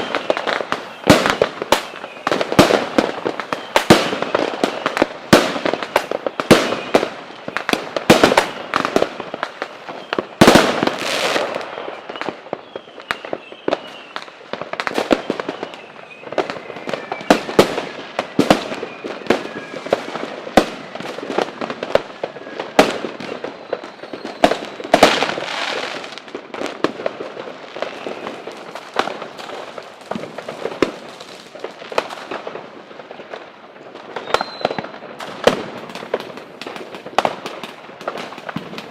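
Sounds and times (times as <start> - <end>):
fireworks bangs and cracks: 0.0 - 38.9.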